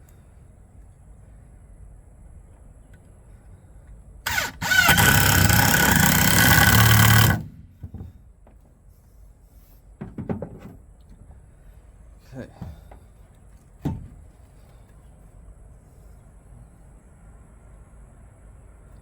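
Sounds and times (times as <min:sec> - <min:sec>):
electric power saw whining: 0:04.3 - 0:07.7.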